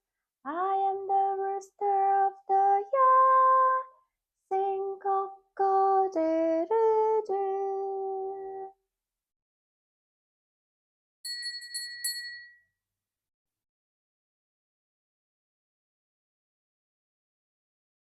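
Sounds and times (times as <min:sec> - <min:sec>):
woman singing unaccompanied: 0:00.5 - 0:08.8.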